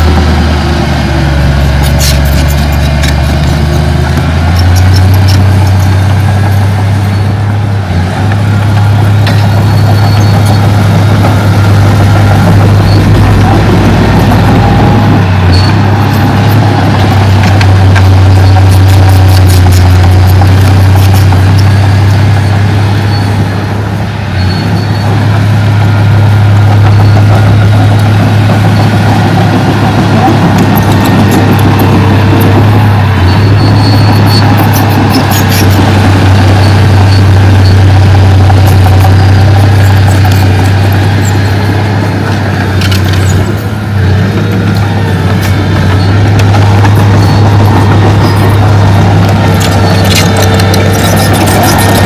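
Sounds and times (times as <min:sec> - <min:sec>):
heavy diesel engine running: 0:00.0 - 0:52.0.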